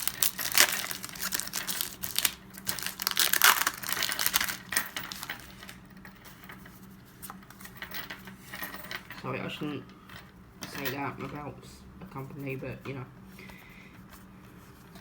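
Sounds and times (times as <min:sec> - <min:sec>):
foil wrappers crinkling and tearing: 0:00.0 - 0:05.7
soft rustles and clicks: 0:00.0 - 0:08.8.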